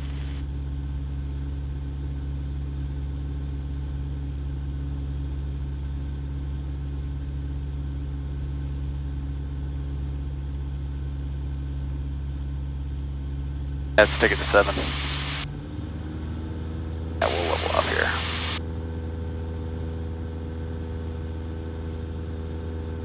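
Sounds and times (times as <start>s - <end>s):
airplane engine and propeller droning: 12.7s - 23.0s.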